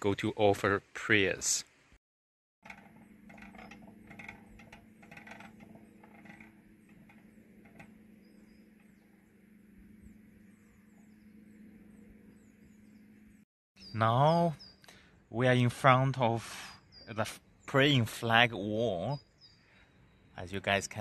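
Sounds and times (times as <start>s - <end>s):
light clicking and rattling: 2.6s - 9.4s
low steady hum: 2.6s - 13.4s
faint birds chirping: 2.6s - 21.0s.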